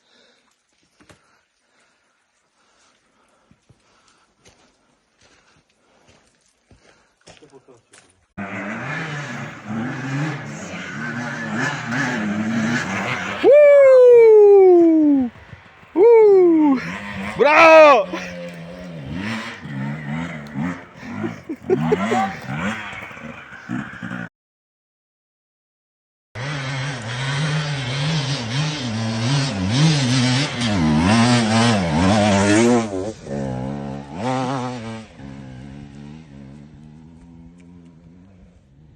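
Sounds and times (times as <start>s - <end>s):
dirt bike engine revving: 8.4s - 24.3s, 26.4s - 38.9s.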